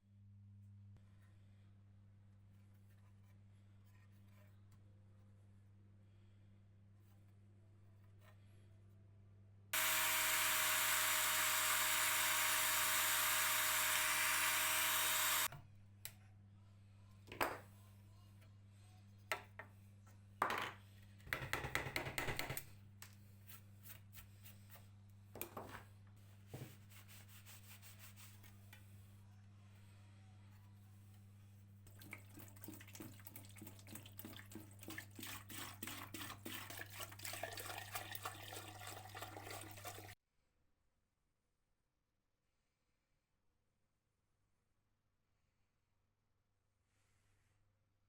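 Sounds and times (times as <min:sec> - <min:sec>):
power tool running: 0:09.8 - 0:15.5.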